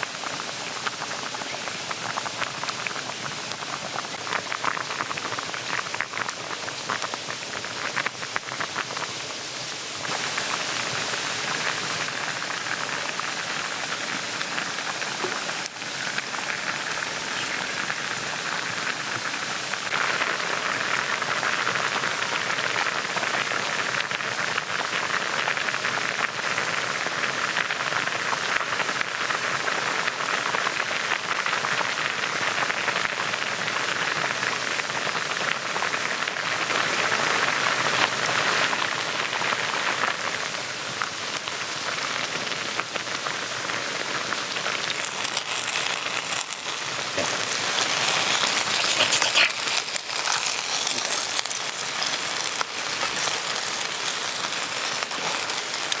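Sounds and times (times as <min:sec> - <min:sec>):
small clicks and ticks: 0:44.9 - 0:56.0.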